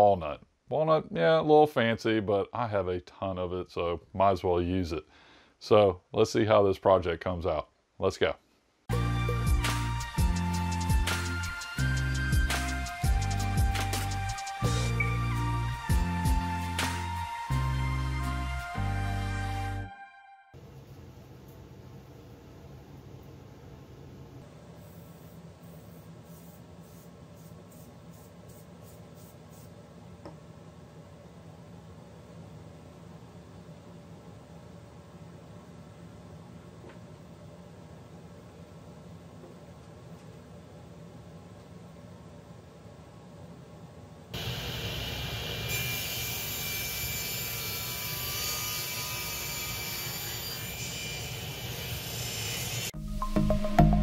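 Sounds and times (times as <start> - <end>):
background music: 8.9 - 20.5, 53.0 - 54.0
aerosol spray can hissing: 24.8 - 29.8
table saw cutting wood: 44.4 - 53.0.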